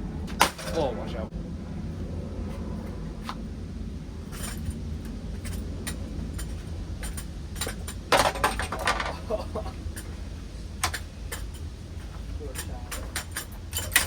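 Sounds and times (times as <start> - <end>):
ceiling fan hum: 0.0 - 14.0
loose parts clinking and rattling: 5.4 - 10.1, 12.5 - 14.0.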